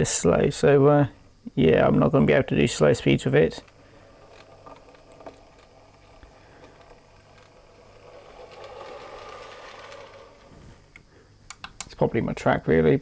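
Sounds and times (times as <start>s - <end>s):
model train motor whirring: 2.7s - 11.1s.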